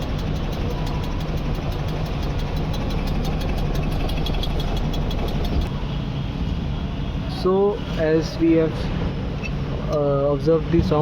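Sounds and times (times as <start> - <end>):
fast metallic ticking: 0.0 - 5.7
washing machine humming: 0.0 - 5.7.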